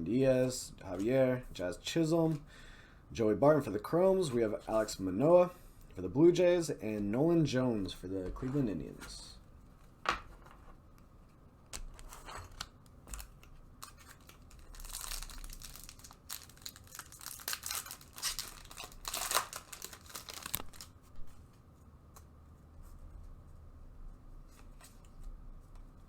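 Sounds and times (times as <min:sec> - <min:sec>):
wrapper tearing and crinkling: 0:11.9 - 0:21.0.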